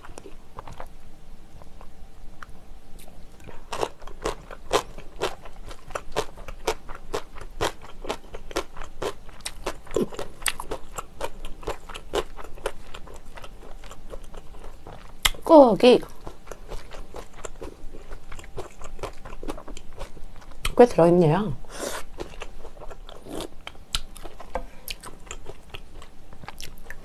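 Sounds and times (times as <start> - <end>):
close-miked chewing: 1.6 - 20.8, 21.8 - 27.0.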